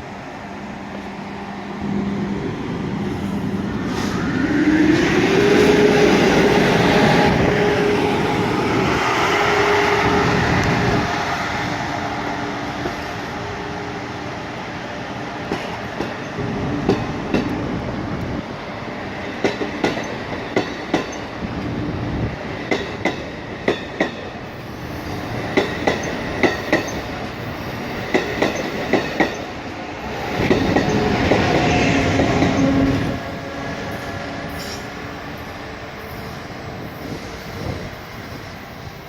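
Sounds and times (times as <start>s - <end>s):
train wheels clicking over rail joints: 25.3s - 29.5s.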